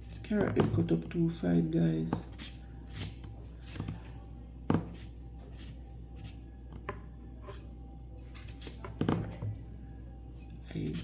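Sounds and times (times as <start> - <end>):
knife chopping on cutting board: 4.7 - 5.7.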